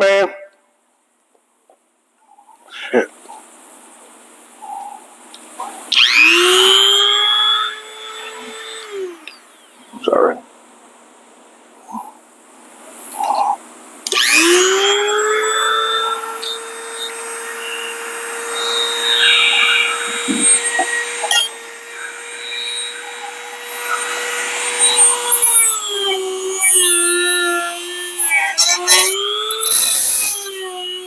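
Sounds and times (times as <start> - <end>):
electric drill whining: 5.9 - 9.8, 14.1 - 31.0.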